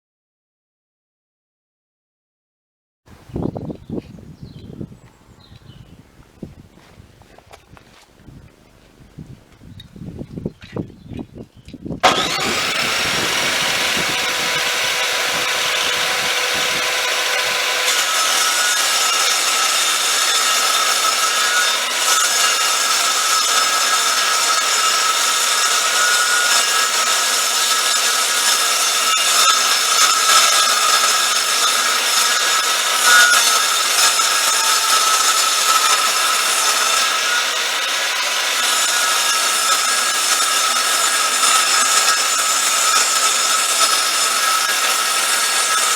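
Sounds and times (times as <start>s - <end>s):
table saw cutting wood: 12.0s - 45.9s.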